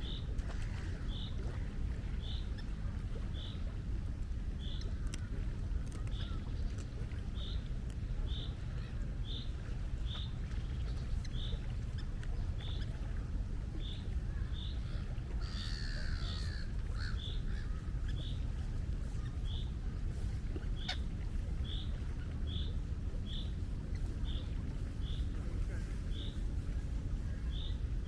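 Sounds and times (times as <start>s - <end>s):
sea wind and waves: 0.0s - 28.0s
gull calling: 14.4s - 18.3s.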